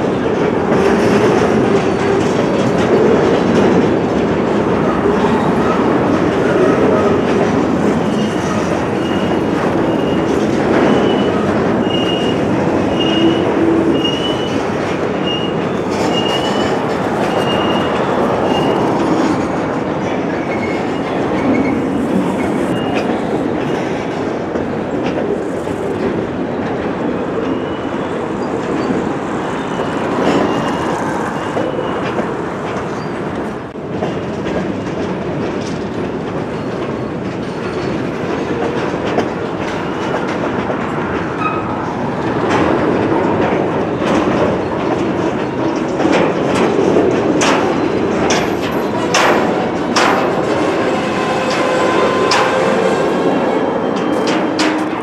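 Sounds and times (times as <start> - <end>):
steel wheels rumbling on rail: 0.0 - 55.0
sharp clicks and clanks: 42.2 - 50.6.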